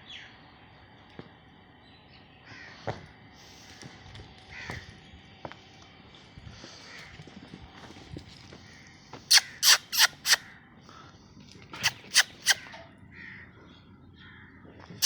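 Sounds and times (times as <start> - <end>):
crow cawing: 2.5 - 2.8, 4.5 - 4.9, 12.1 - 13.5.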